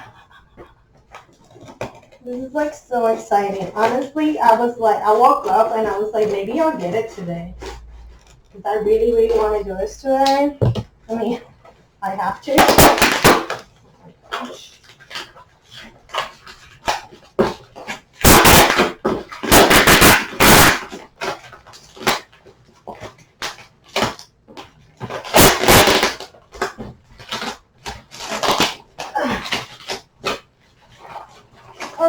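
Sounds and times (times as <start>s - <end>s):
cardboard tearing and crinkling: 12.4s - 32.0s.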